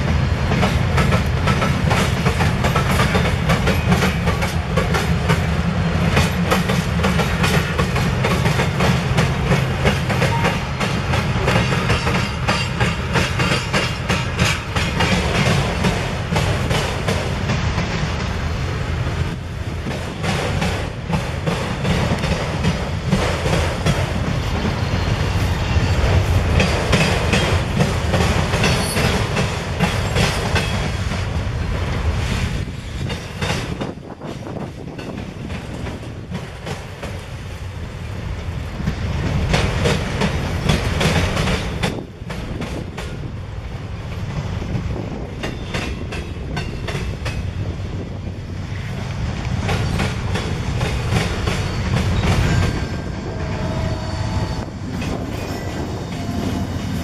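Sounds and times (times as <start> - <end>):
wheels clacking over rail joints: 0.0 - 18.4, 38.8 - 43.4, 44.1 - 57.0
train cars rumbling past: 0.0 - 57.0
wheel squeal: 51.5 - 57.0.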